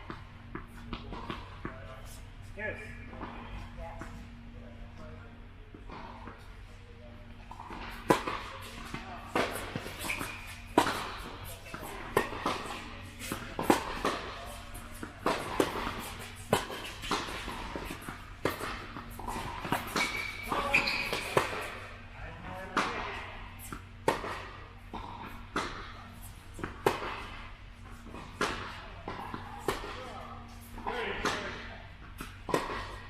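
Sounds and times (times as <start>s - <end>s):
tennis balls struck by racquets: 0.0s - 2.1s, 7.3s - 33.0s
balls bouncing on court: 7.3s - 22.0s, 30.8s - 33.0s.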